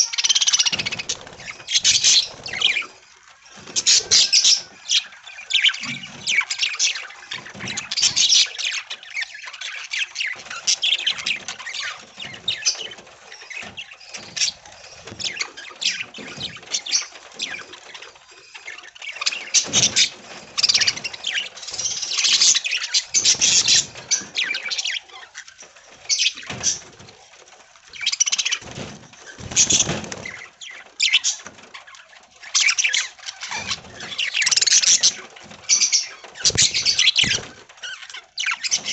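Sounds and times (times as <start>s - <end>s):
budgies chattering and chirping: 0.0s - 38.9s.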